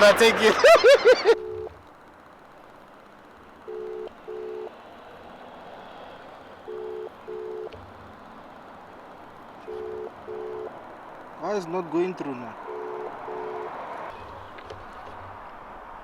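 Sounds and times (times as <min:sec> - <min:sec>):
telephone ringback tone: 0:01.0 - 0:01.8, 0:03.6 - 0:04.8, 0:06.6 - 0:07.8, 0:09.6 - 0:10.8, 0:12.6 - 0:13.8.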